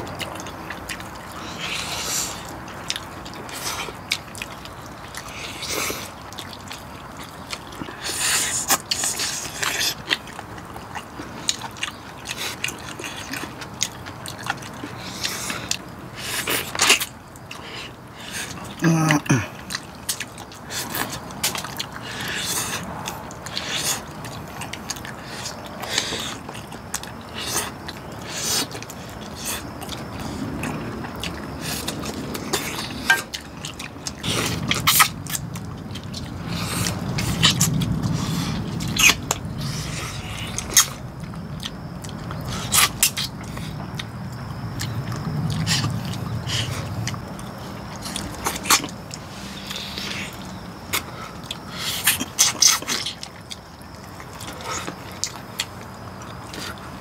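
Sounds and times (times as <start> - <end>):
people chewing meat: 0.0 - 57.0
low steady rumble: 19.6 - 51.9.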